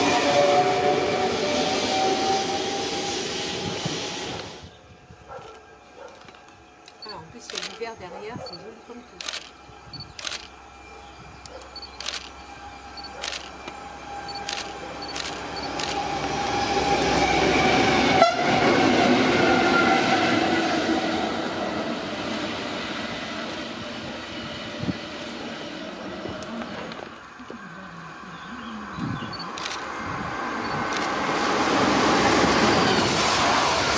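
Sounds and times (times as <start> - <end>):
train passing at speed: 0.0 - 33.9
sharp clicks: 6.1 - 7.9, 9.2 - 10.6, 11.4 - 12.4, 13.0 - 16.0.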